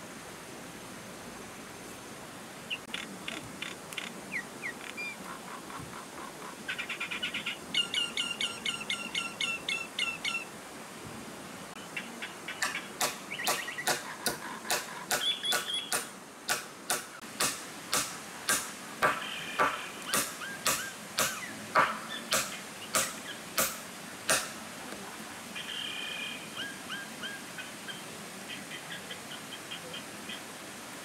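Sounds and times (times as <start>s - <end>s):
faint forest hiss: 0.0s - 31.0s
birds chirping and trilling: 2.7s - 10.5s, 11.8s - 16.1s, 19.0s - 23.8s, 25.5s - 30.5s
bird sharp clicking notes: 12.6s - 17.1s, 18.5s - 24.5s.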